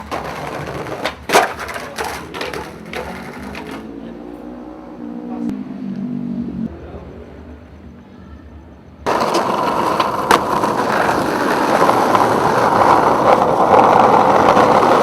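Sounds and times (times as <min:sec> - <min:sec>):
skateboard clacks: 0:00.0 - 0:03.9, 0:09.1 - 0:15.0
skateboard wheels rolling on pavement: 0:00.0 - 0:04.4, 0:09.0 - 0:15.0
low hum with shifting pitch: 0:04.0 - 0:07.0.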